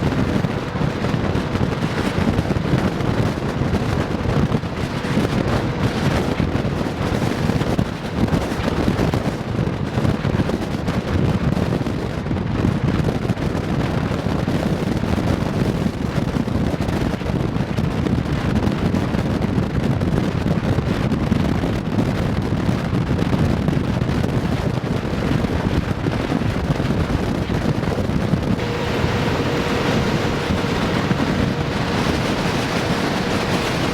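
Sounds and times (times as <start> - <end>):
wind buffeting microphone: 0.0 - 33.9.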